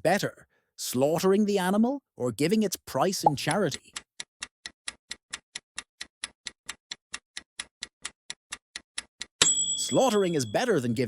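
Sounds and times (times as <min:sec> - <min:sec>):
bright ringing tone: 0:09.4 - 0:11.0
countdown timer ticking: 0:09.4 - 0:11.0.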